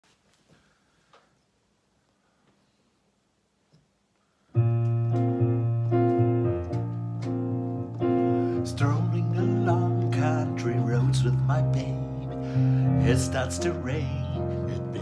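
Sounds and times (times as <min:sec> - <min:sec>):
keyboard chords: 0:04.6 - 0:15.0.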